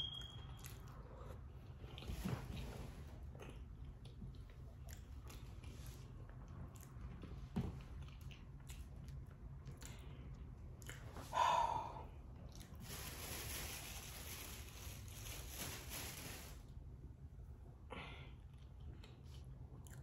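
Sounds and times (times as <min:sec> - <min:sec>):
person chewing: 0:00.0 - 0:02.2, 0:03.2 - 0:11.3, 0:18.5 - 0:20.0.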